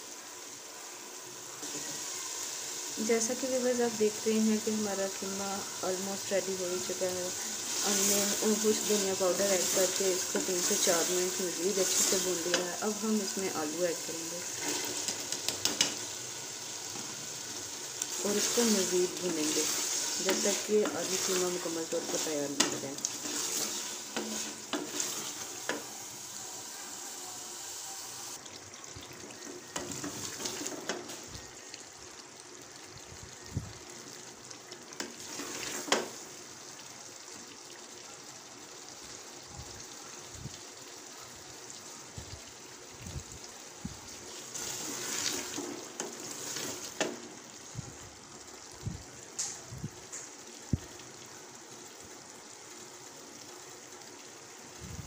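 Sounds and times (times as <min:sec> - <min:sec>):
meat and potatoes sizzling: 0:00.0 - 0:55.0
wooden spoon stirring: 0:18.1 - 0:25.9.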